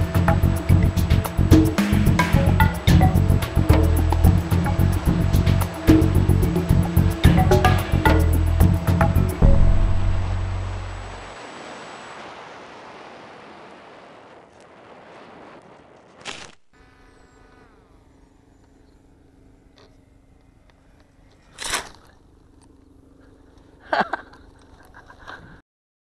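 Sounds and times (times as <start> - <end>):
low steady hum: 0.0 - 14.2
rushing noise: 0.0 - 16.2
brief falling whine: 9.4 - 18.7.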